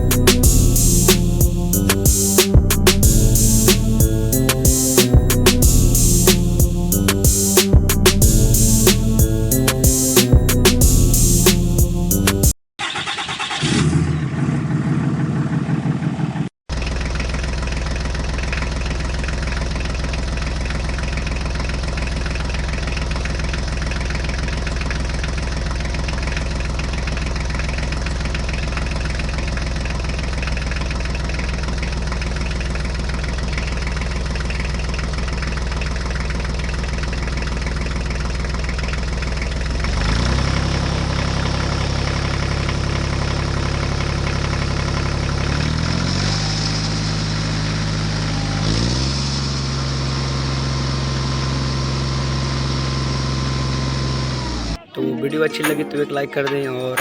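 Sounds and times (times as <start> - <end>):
small engine idling: 12.8 - 54.8.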